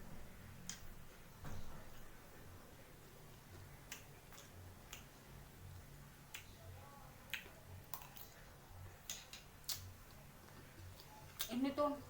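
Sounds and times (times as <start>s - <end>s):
sharp eating clicks: 3.5s - 5.1s, 7.3s - 8.4s, 9.0s - 11.6s.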